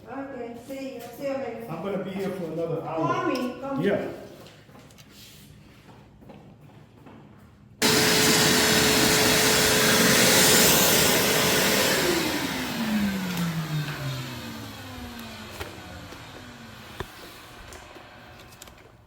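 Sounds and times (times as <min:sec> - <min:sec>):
electric blower motor whining: 0:07.8 - 0:19.0.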